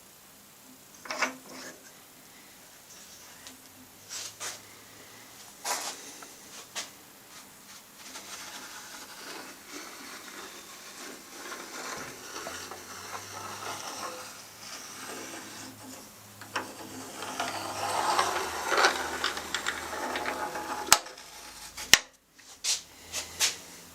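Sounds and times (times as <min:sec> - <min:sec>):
metal scraping and sliding: 0:05.6 - 0:22.0.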